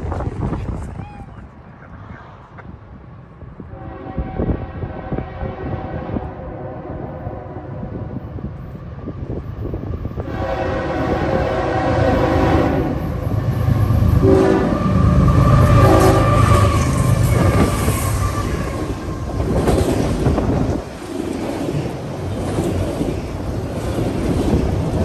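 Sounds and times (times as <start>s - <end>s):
train rumble and wheel clatter: 0.0s - 25.0s
locomotive air horn: 3.7s - 7.9s, 10.2s - 19.0s.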